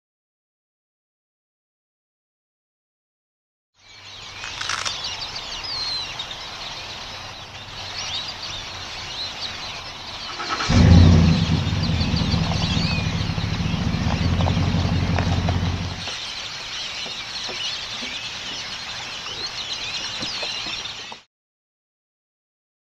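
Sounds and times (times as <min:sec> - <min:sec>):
birds chirping and calling: 0:03.9 - 0:21.2
low steady hum: 0:10.7 - 0:16.1.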